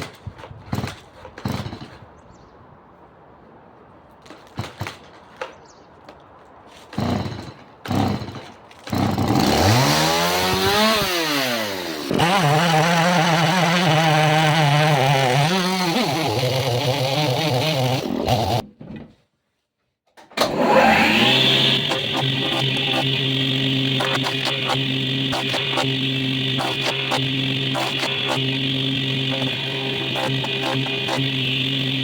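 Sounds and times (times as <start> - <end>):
chainsaw engine revving: 7.0 - 18.6, 20.4 - 32.0.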